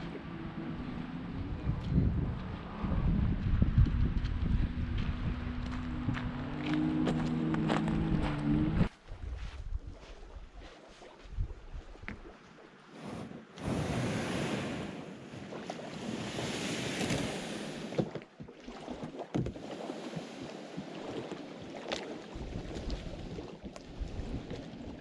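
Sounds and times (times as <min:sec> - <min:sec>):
wind buffeting microphone: 0:00.0 - 0:10.6
water sloshing against hull: 0:09.8 - 0:25.0
kayak paddle splashing: 0:10.6 - 0:25.0.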